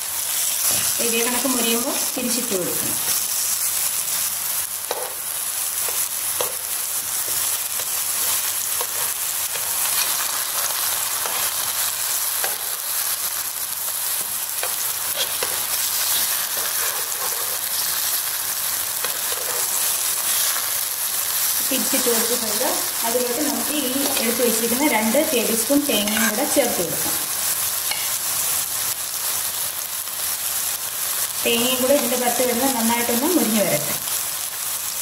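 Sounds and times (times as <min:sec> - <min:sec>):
plantain sizzling in a pan: 0:00.0 - 0:35.0.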